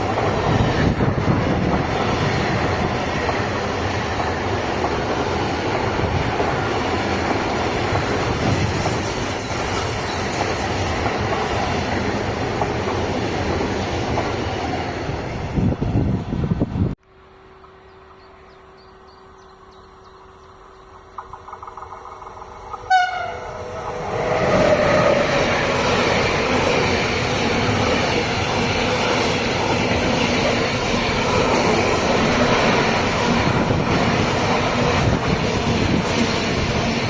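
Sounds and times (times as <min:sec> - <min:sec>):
train wheels rumbling on rails: 0:00.0 - 0:18.4, 0:20.1 - 0:37.0
train horn blast: 0:22.8 - 0:25.6.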